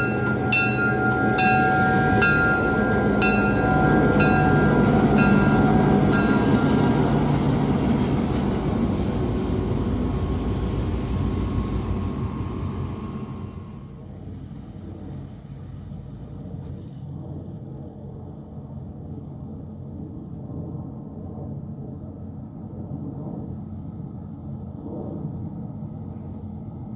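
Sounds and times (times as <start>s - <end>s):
locomotive bell ringing: 0.0s - 13.6s
train rumbling: 0.0s - 18.8s.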